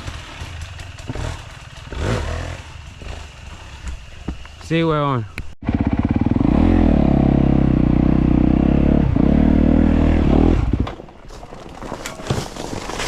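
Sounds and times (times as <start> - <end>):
dirt bike engine revving: 0.0 - 3.9, 5.6 - 10.8.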